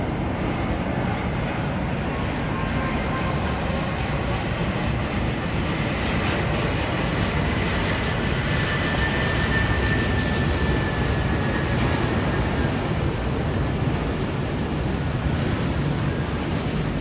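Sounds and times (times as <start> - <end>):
high jet whine: 0.0 - 7.5
jet engine rumble: 0.0 - 17.0.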